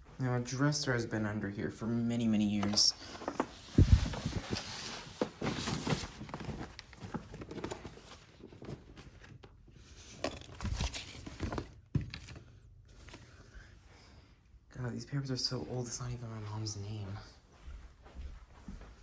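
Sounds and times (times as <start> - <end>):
paper rustling and crinkling: 2.6 - 9.6, 10.6 - 13.2.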